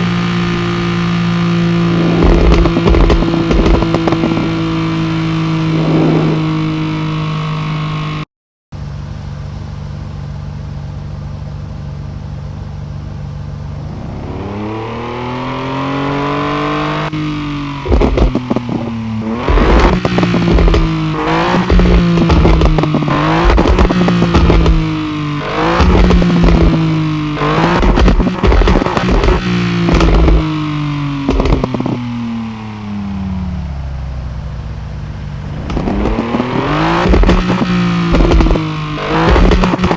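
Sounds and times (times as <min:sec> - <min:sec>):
exhaust crackles and pops: 0:00.0 - 0:06.6, 0:17.7 - 0:32.6, 0:35.4 - 0:39.9
car engine idling and revving: 0:00.0 - 0:08.2, 0:08.8 - 0:39.9.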